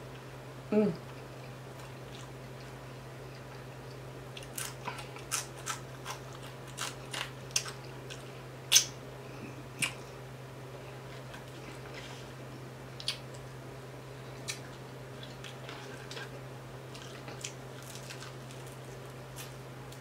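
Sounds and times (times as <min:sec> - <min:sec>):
low steady hum: 0:00.0 - 0:20.0
crunchy chewing: 0:01.1 - 0:09.0, 0:14.3 - 0:20.0.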